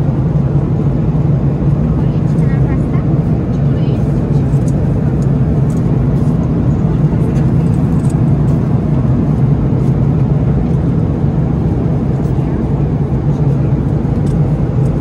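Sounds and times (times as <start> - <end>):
airplane cabin engine rumble: 0.0 - 15.0.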